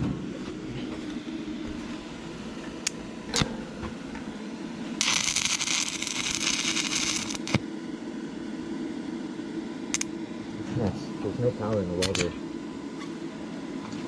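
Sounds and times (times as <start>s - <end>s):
steady low hum: 0.0s - 14.0s
arc welding crackle: 4.9s - 7.7s, 11.7s - 12.4s.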